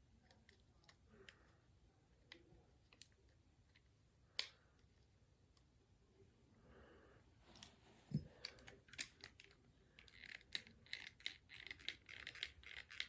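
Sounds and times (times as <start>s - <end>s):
plastic toy parts clicking: 8.5s - 13.0s.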